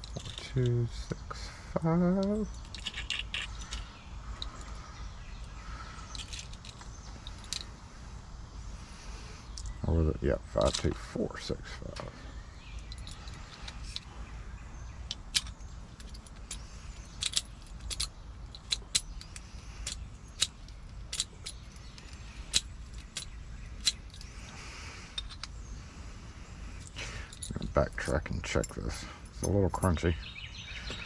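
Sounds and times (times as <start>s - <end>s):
metal clicks of lock pins and tools: 0.0s - 0.8s, 2.2s - 4.7s, 6.1s - 7.7s, 12.8s - 14.1s, 15.1s - 24.3s, 25.1s - 25.5s, 26.8s - 30.0s
low steady rumble: 0.0s - 30.2s.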